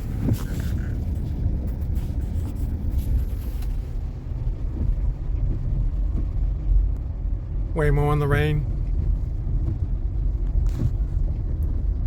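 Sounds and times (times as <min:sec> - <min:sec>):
faint hiss with light ticks: 0:00.0 - 0:07.1
road and tyre rumble: 0:00.0 - 0:12.0.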